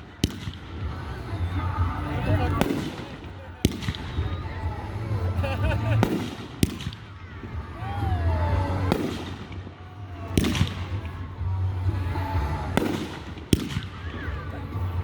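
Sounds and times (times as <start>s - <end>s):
fireworks bangs: 2.5s - 4.3s, 6.0s - 7.6s, 8.8s - 11.3s, 12.8s - 14.3s.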